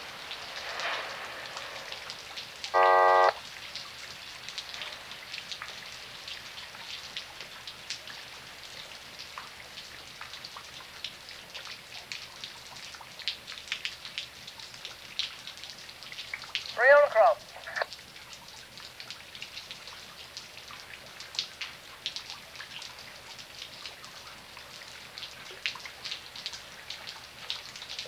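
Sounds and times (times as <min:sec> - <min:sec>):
close raindrops pattering: 0:00.0 - 0:28.0
steady rain falling: 0:00.0 - 0:28.0
short loud buzzing tone: 0:02.8 - 0:03.4.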